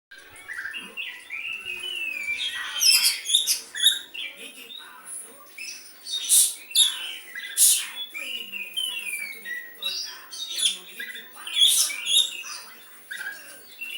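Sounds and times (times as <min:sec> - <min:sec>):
harsh scratchy bird calls: 0:00.2 - 0:13.9
bird singing varied whistles: 0:06.2 - 0:09.8.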